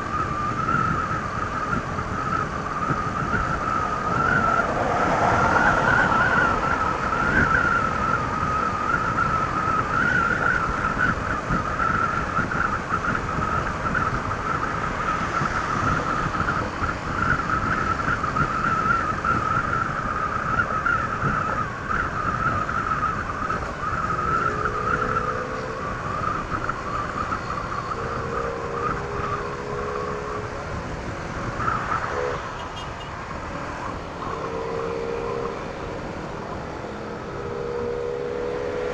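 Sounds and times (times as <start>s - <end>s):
wind and road noise: 0.0s - 38.9s
steady hums: 19.8s - 38.9s.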